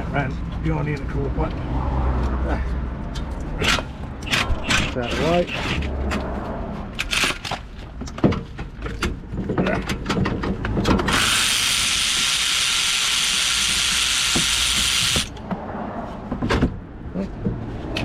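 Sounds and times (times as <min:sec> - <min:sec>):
power tool running: 0:11.1 - 0:15.3.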